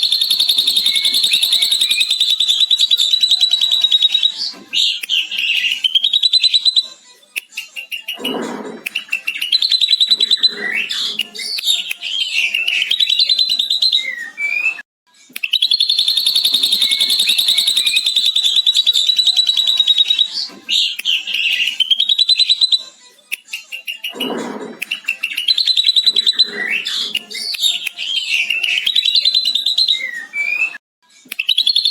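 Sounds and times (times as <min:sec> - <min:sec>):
bird rapid trill: 0:00.0 - 0:04.3, 0:15.6 - 0:19.8
bird chattering song: 0:00.0 - 0:06.9, 0:15.5 - 0:22.8, 0:23.7 - 0:30.6.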